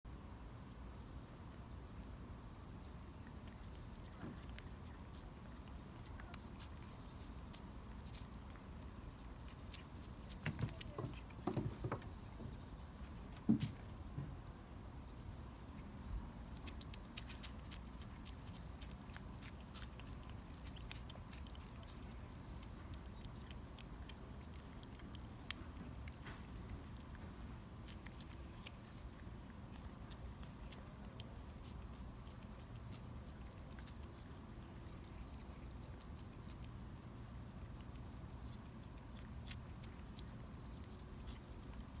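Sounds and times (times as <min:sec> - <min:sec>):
cat licking with tongue clicks: 0:16.4 - 0:42.0.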